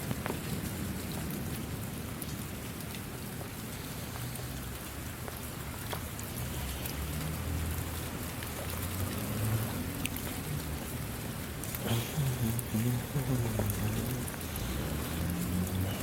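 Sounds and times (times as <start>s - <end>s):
steady rain hiss: 0.0s - 16.0s
drops ticking: 4.2s - 16.0s.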